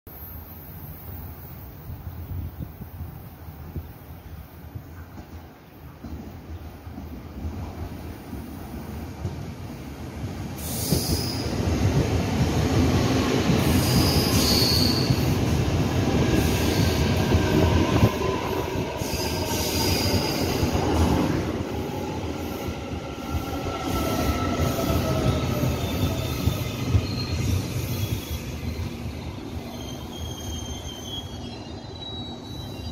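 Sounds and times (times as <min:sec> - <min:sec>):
train wheels rumbling on rail: 0:01.2 - 0:32.9
high wheel squeals: 0:13.7 - 0:15.4, 0:23.8 - 0:32.9.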